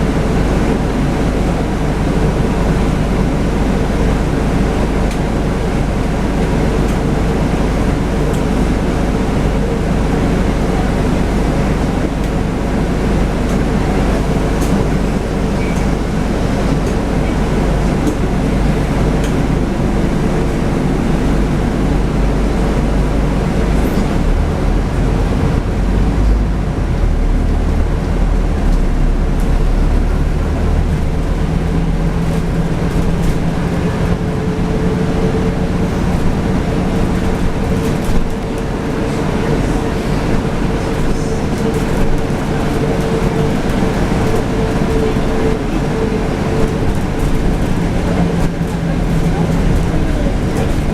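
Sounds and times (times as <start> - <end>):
bus engine rumble: 0.0 - 50.9.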